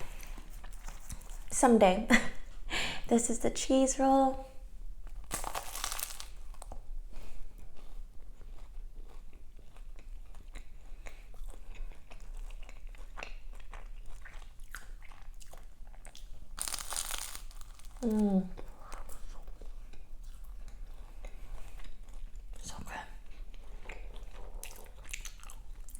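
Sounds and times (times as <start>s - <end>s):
chewing crisp pastry: 0.0s - 1.5s, 5.0s - 25.9s
crunchy pastry bite: 5.1s - 6.8s, 12.1s - 19.6s.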